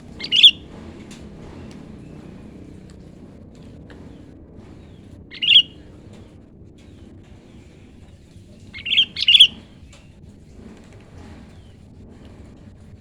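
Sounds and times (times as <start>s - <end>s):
bulbul calling: 0.0s - 0.6s, 5.3s - 5.8s, 8.8s - 9.7s.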